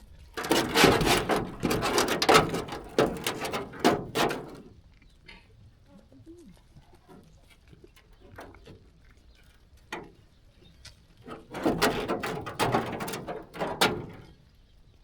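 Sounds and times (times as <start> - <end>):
clatter of knocks and rattles: 0.4 - 4.7, 7.8 - 14.5.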